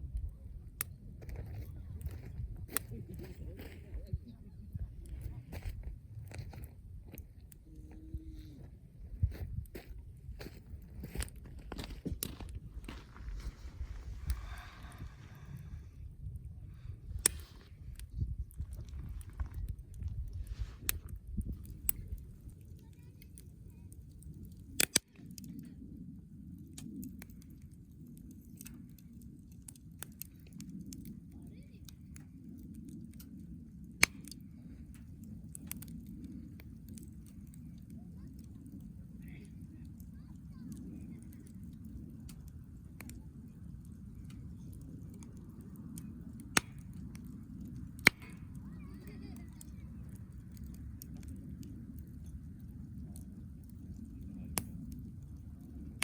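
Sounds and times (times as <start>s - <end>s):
low rumble: 0.0s - 22.7s
campfire crackling: 0.0s - 56.0s
sharp fire pops: 16.8s - 25.8s, 26.6s - 31.2s, 32.0s - 56.0s.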